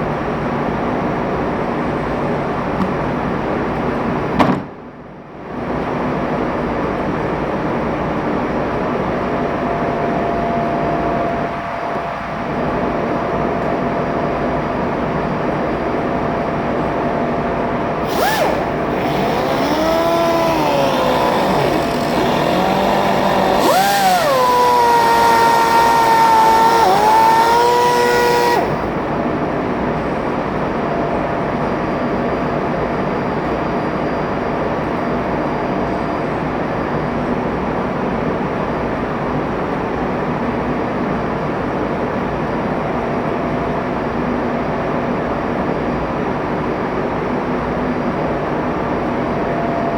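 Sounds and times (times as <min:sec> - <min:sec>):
engine room machinery drone: 0:00.0 - 0:49.9
fuel injector hissing and singing: 0:18.0 - 0:29.0.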